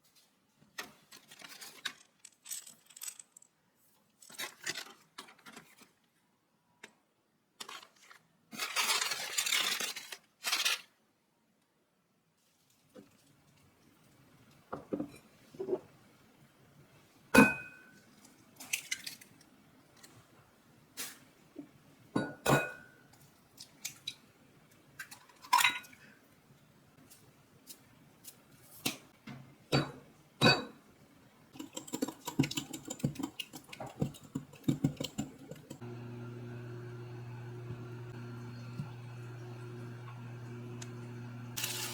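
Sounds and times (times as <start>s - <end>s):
dishes and utensils clinking: 22.2s - 23.0s.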